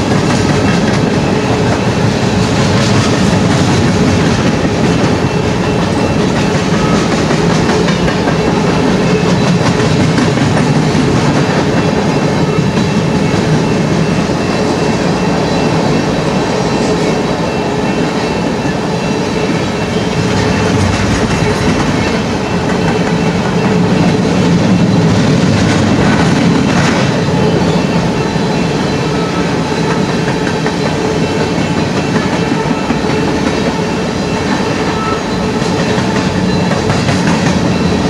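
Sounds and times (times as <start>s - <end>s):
freight train rumble: 0.0s - 38.0s
wheel clatter on rails: 19.4s - 38.0s
high wheel squeal: 27.1s - 38.0s.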